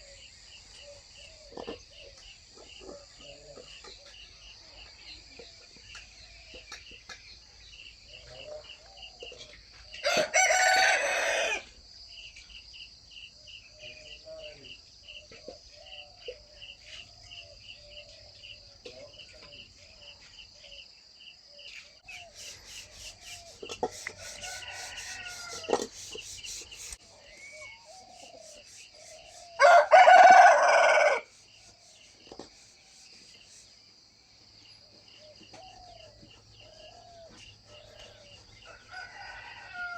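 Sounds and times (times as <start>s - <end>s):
crickets chirring: 0.0s - 39.9s
rooster crowing: 10.0s - 11.7s, 24.0s - 25.9s, 29.6s - 31.3s, 37.8s - 39.9s
hens clucking: 22.2s - 27.0s.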